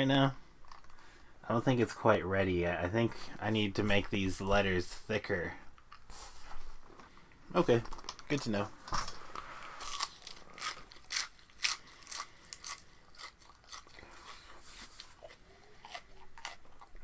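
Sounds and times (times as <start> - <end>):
person chewing raw vegetables: 9.8 - 17.0.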